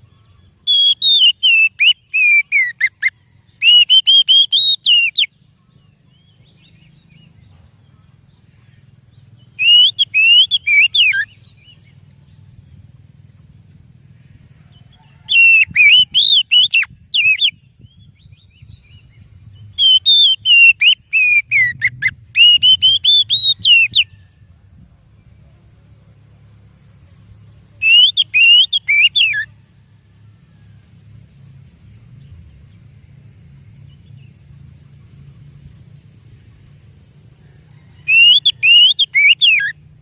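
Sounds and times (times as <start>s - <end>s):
bird singing warbling phrases: 0.0s - 13.5s, 14.1s - 24.4s, 27.2s - 30.3s, 38.0s - 40.0s.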